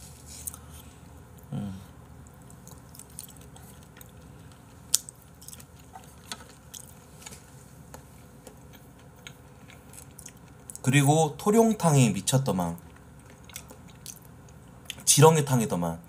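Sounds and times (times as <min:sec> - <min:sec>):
person humming: 0:01.4 - 0:02.0
wet chewing and mouth clicks: 0:02.1 - 0:07.0, 0:08.4 - 0:10.8, 0:12.8 - 0:15.0.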